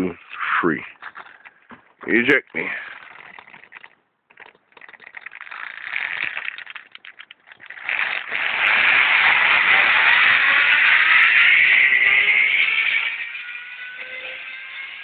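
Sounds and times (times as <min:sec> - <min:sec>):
zip-line pulleys rattling on cable: 0:02.5 - 0:15.0.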